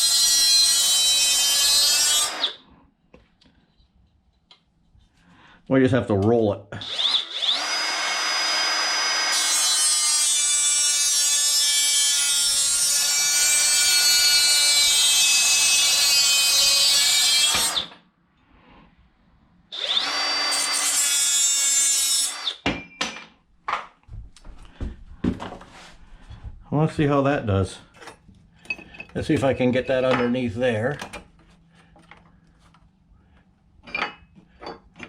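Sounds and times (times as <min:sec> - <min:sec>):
handheld power saw cutting: 0:00.0 - 0:02.6, 0:06.8 - 0:18.0, 0:19.7 - 0:22.6.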